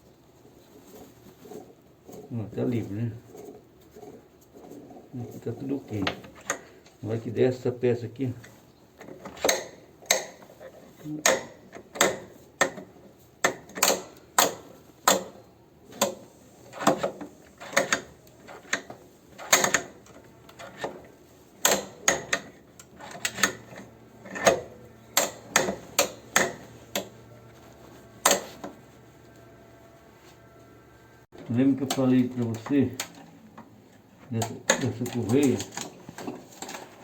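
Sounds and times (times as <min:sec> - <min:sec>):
mechanism clicking and knocking: 0:08.4 - 0:27.3, 0:27.9 - 0:28.9, 0:31.4 - 0:37.0.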